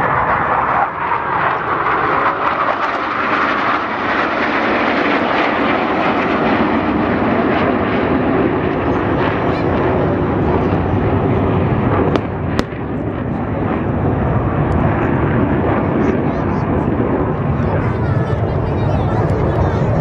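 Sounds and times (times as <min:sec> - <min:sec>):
jet aircraft flying past: 0:00.0 - 0:20.0.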